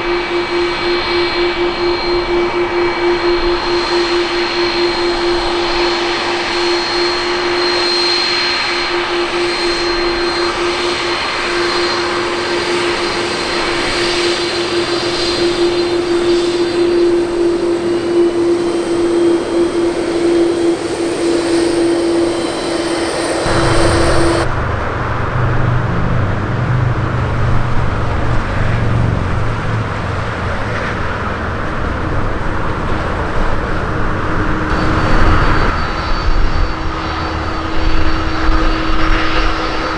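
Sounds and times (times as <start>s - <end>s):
jet engine whine: 0.0s - 39.9s
deep engine rumble: 23.4s - 39.9s.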